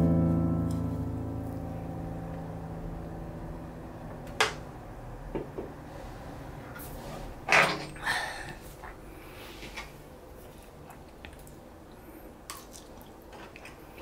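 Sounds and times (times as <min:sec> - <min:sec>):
soft piano music: 0:00.0 - 0:05.1.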